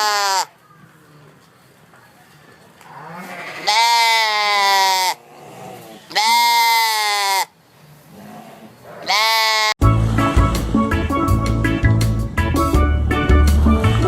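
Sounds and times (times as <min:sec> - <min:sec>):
long loud bleats: 0:00.0 - 0:00.5, 0:02.9 - 0:07.6, 0:08.3 - 0:09.8.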